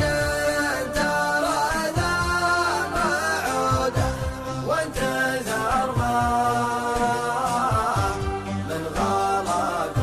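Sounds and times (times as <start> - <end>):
chant-like singing: 0.0 - 10.0
steady drum beat: 1.8 - 7.1.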